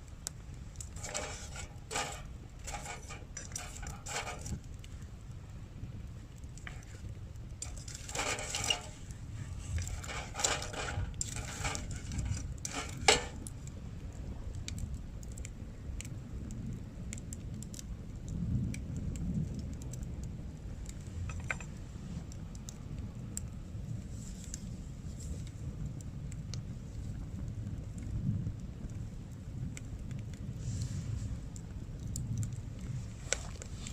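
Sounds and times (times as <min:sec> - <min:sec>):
steady low rumble: 0:00.0 - 0:24.1
small hard objects clinking: 0:00.8 - 0:04.6, 0:07.6 - 0:13.4.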